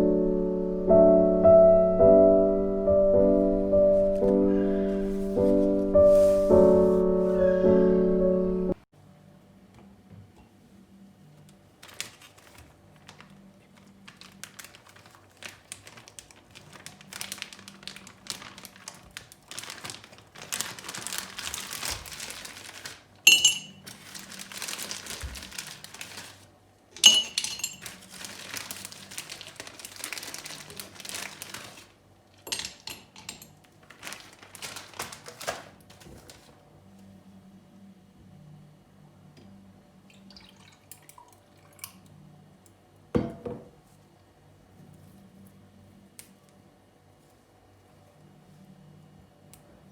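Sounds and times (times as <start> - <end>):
rustling and crinkling: 3.4 - 7.6, 11.4 - 37.2.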